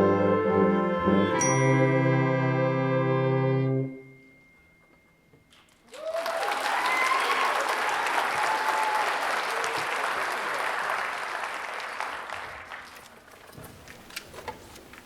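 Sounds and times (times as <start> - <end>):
audience applauding: 5.6 - 13.3
whoops and cheers: 5.9 - 10.2.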